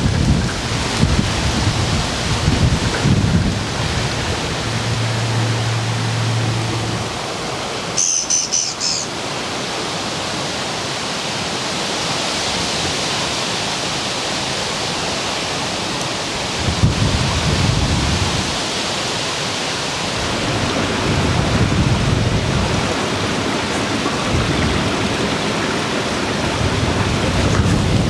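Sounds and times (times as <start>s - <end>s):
wind buffeting microphone: 0.0s - 8.0s, 16.2s - 18.6s, 20.0s - 28.0s
wind rustling leaves: 0.0s - 28.0s
low steady hum: 1.6s - 7.8s
short high-pitched trill: 8.0s - 9.1s.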